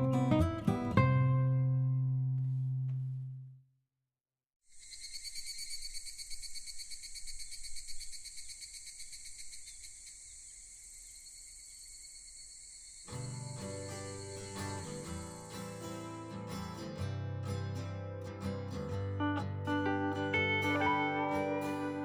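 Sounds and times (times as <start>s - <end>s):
crickets chirping: 4.7s - 16.7s.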